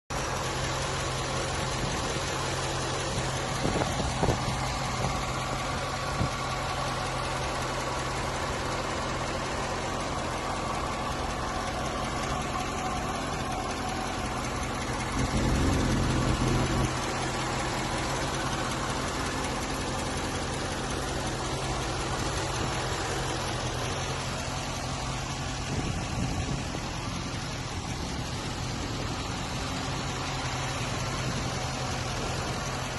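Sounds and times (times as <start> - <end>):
car engine idling: 0.0 - 32.9
engine ticking: 0.0 - 32.9.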